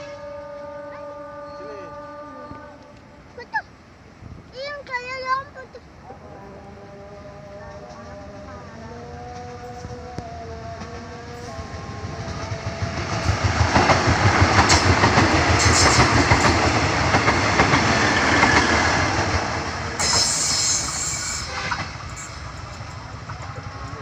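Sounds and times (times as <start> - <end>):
train wheels clattering over rail joints: 13.0 - 24.0.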